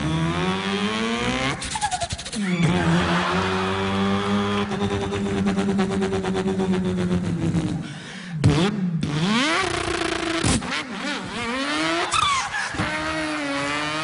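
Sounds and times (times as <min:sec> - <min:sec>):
man imitating car engine: 0:00.9 - 0:10.4.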